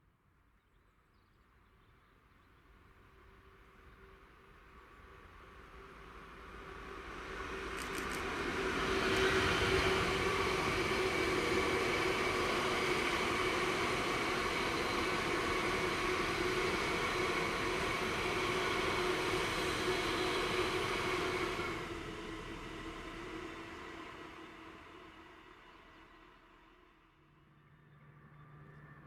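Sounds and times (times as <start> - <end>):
train wheels on rails: 5.0 - 26.7.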